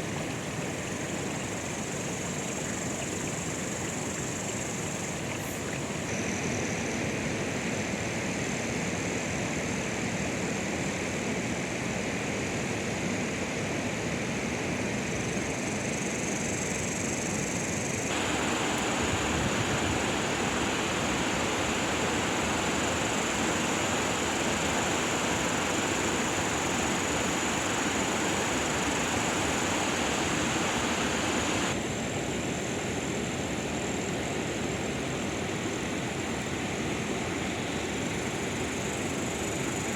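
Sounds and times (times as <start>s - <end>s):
steady rain hiss: 0.0s - 6.2s, 18.0s - 31.8s.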